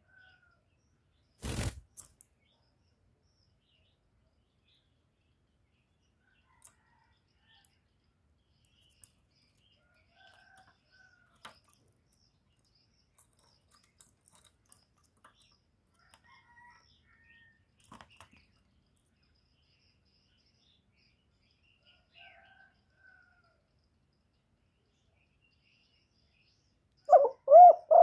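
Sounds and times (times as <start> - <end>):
birds chirping and calling: 27.0 - 28.0.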